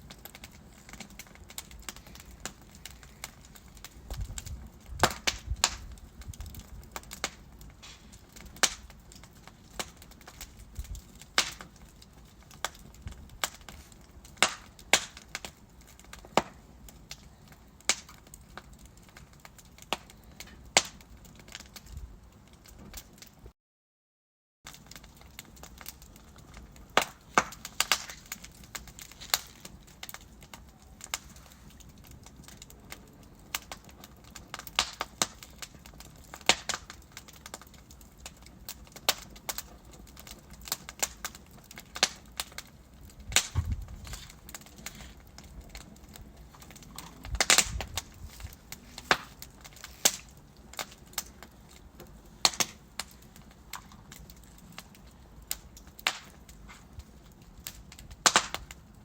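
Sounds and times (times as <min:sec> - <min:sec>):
wood logs crackling in fireplace: 0:00.0 - 0:23.5, 0:24.7 - 0:59.0.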